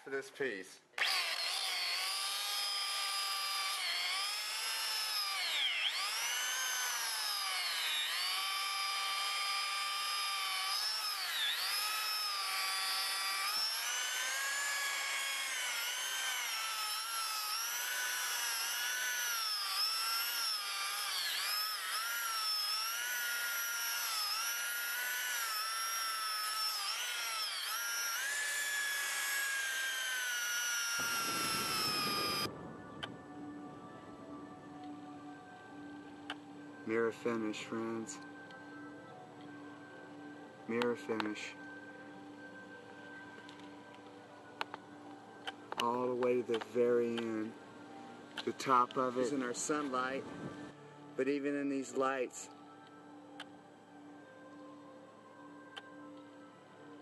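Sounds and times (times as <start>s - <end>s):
electric polisher motor whine: 1.0s - 33.3s, 41.5s - 44.8s.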